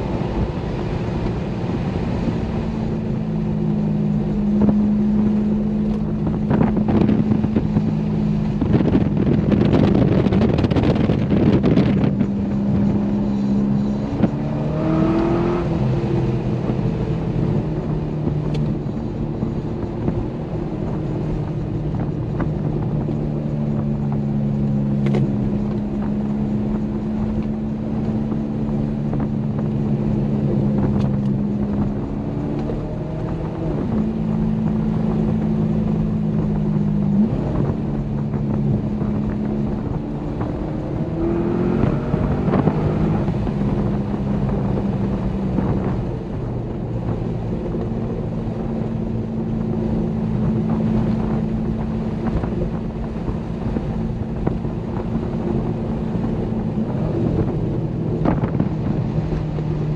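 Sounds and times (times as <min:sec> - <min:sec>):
car engine running: 0:00.0 - 0:59.9
road noise: 0:00.0 - 0:59.9.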